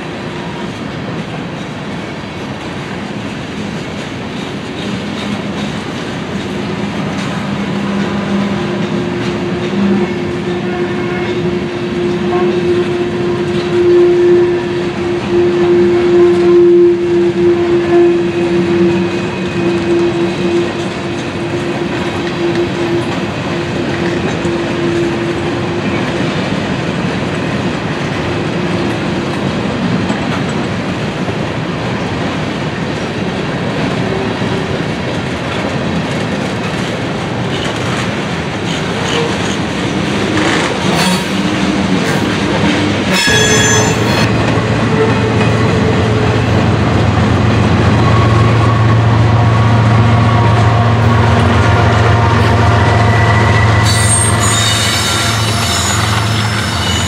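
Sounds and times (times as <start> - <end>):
train rumbling and clattering past: 0.0 - 57.0
high-pitched squeal: 7.7 - 26.1, 40.0 - 46.6, 47.8 - 57.0.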